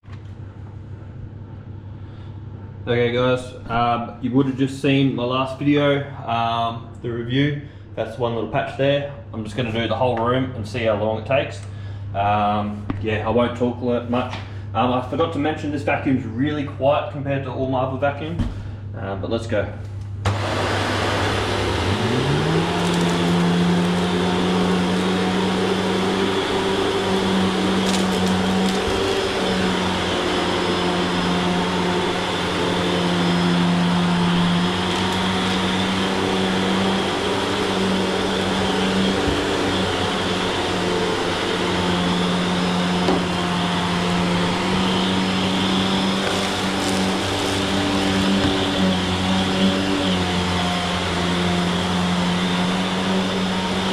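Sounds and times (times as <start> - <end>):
vacuum cleaner running: 20.2 - 53.9.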